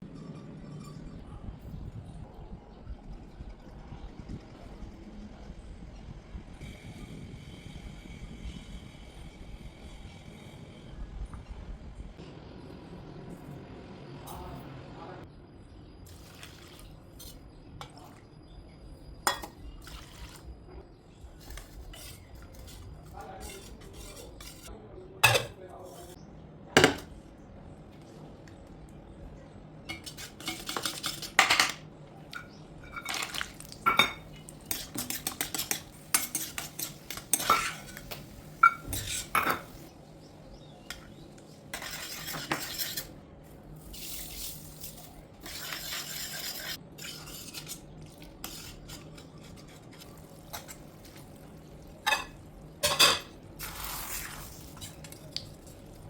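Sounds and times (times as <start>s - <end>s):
stirring and scraping in pot: 0.0s - 1.3s, 16.1s - 18.3s, 19.2s - 20.6s, 21.2s - 26.2s, 29.9s - 31.7s, 32.4s - 39.9s, 40.9s - 56.0s
metal utensils clinking on pot: 19.2s - 20.3s, 21.4s - 26.1s, 29.9s - 39.8s, 48.4s - 53.4s.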